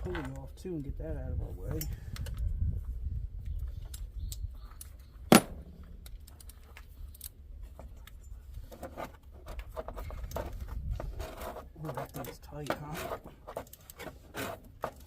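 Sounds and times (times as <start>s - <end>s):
sharp metallic clack: 5.3s - 6.1s.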